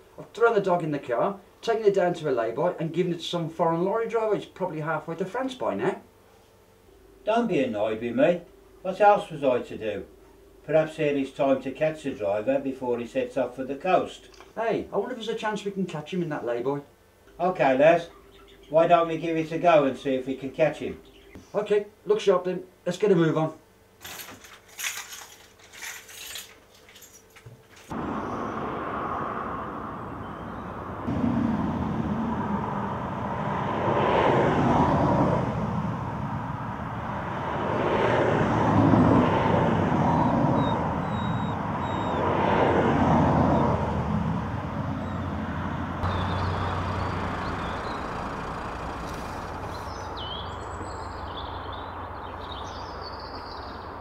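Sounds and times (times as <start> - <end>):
motor vehicle rumble: 24.0 - 54.0.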